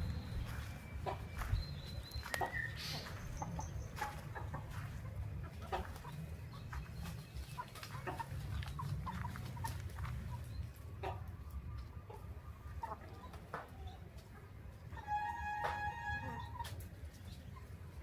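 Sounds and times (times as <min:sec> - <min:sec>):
low steady rumble: 0:00.0 - 0:12.7
chickens clucking: 0:00.0 - 0:18.0.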